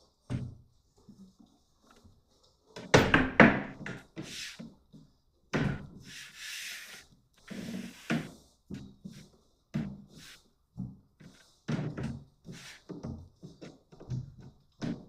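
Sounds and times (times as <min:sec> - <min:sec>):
knocks of wooden panels: 0:02.8 - 0:04.1.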